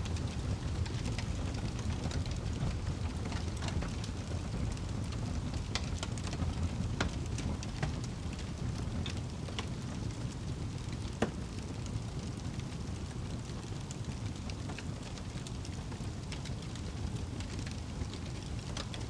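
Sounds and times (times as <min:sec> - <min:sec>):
burning logs crackling and popping: 0:00.0 - 0:19.0
rumble of fire flames: 0:00.0 - 0:19.0.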